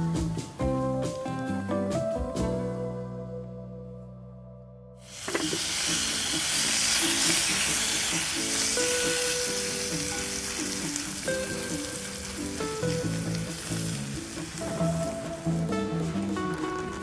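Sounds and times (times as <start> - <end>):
plucked melody music: 0.0 - 17.0
food sizzling in a pan: 5.0 - 17.0.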